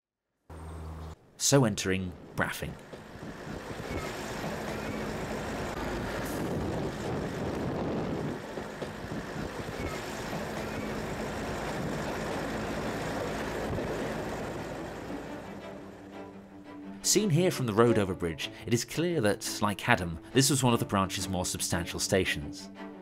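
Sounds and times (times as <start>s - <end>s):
train running on track: 0.5s - 18.0s.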